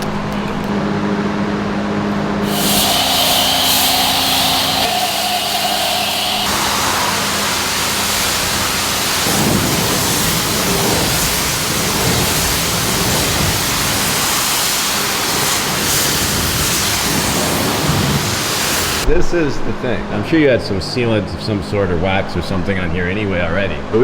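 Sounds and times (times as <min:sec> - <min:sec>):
pressure washer water spraying: 0:02.4 - 0:19.0.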